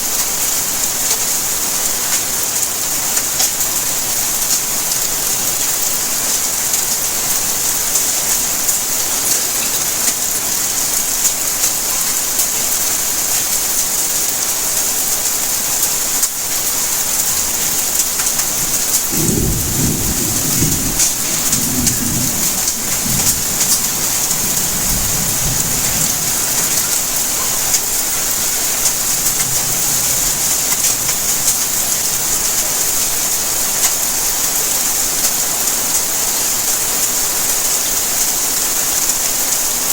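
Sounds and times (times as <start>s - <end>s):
rain falling: 0.0s - 39.9s
thunder rumbling: 18.2s - 33.3s.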